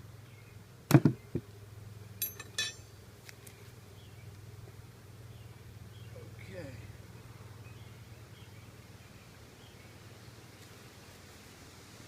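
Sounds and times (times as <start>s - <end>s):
honeybees buzzing: 0.0s - 2.2s, 2.8s - 12.0s
sharp ringing metal clinks: 2.2s - 3.0s.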